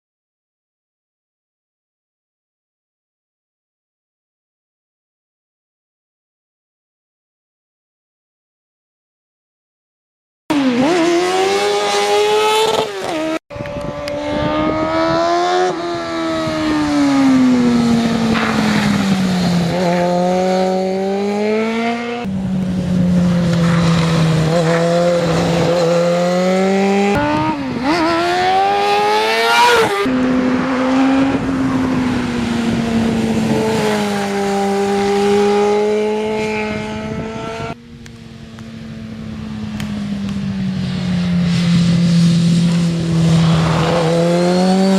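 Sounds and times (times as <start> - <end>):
motorcycle engine revving: 10.5 - 44.9.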